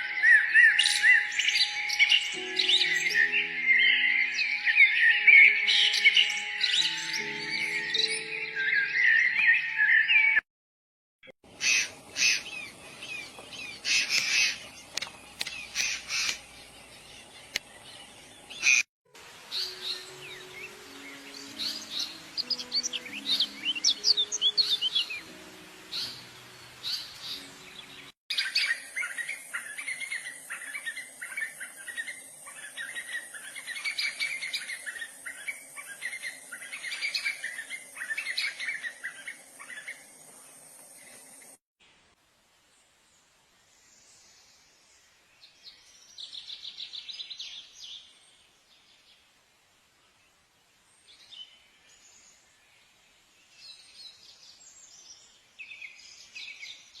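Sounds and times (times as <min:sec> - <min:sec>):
birds calling and singing: 0:00.0 - 0:10.4, 0:11.5 - 0:41.6.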